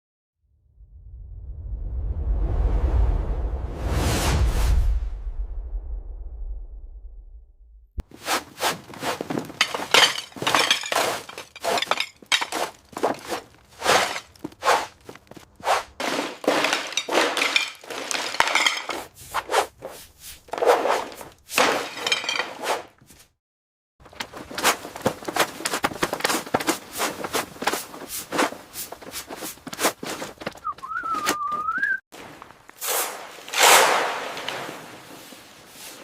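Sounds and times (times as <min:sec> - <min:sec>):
hard debris breaking and clinking: 0:09.3 - 0:14.5, 0:16.0 - 0:19.1.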